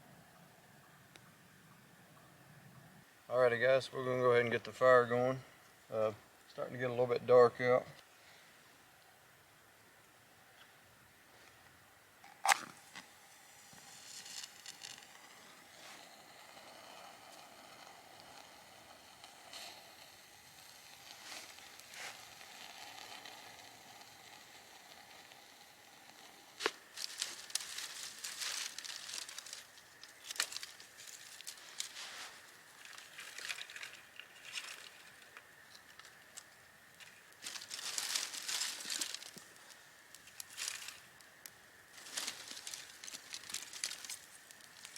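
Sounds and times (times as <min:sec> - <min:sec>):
faint background hiss: 0:00.0 - 0:44.9
campfire crackling: 0:11.3 - 0:44.9.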